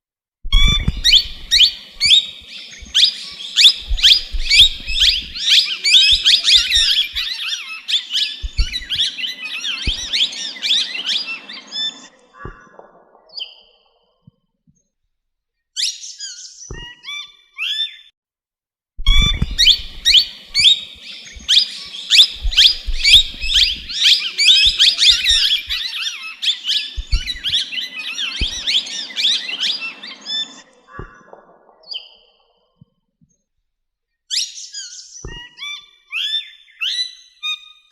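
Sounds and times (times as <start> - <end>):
low thumps: 0.5 - 7.3, 8.4 - 9.1, 19.0 - 25.8, 27.0 - 27.7
birds chattering: 0.5 - 12.8, 19.1 - 32.0.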